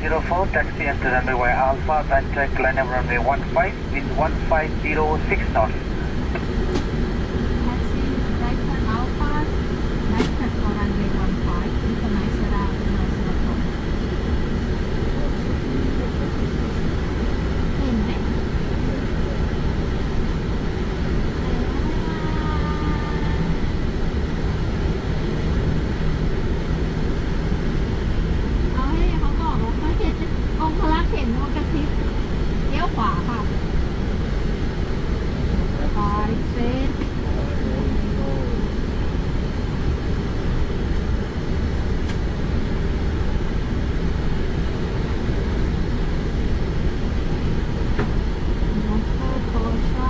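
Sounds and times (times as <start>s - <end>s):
airliner cockpit rumble: 0.0s - 50.0s.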